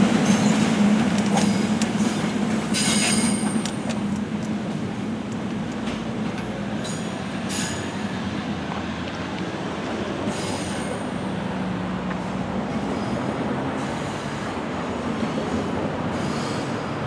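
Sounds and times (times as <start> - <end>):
train rumbling over track: 0.0 - 17.0
high wheel squeal: 1.4 - 3.8.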